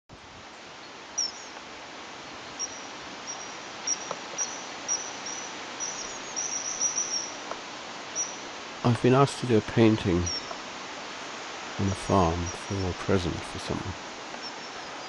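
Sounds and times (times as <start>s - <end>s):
steady outdoor hiss: 0.1s - 15.0s
small bird chirping: 1.2s - 1.6s, 2.5s - 7.4s, 8.1s - 8.4s, 10.2s - 10.6s, 14.4s - 15.0s.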